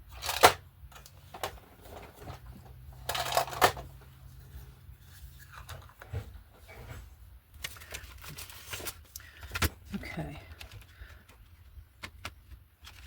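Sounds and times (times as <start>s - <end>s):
paper or packaging rustling: 1.3s - 9.6s.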